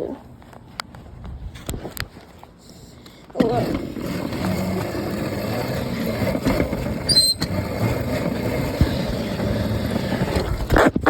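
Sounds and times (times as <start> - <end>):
electric dirt bike riding: 3.3 - 11.0
high squeak: 5.5 - 8.6.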